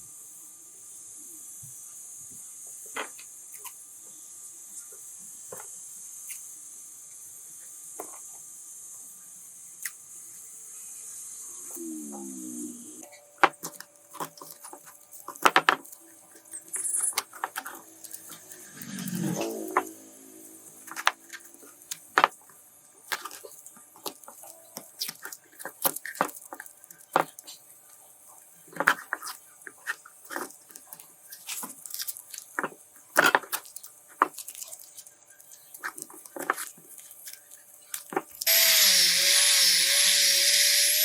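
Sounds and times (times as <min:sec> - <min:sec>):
power tool whining: 0:17.9 - 0:21.3, 0:38.4 - 0:41.0.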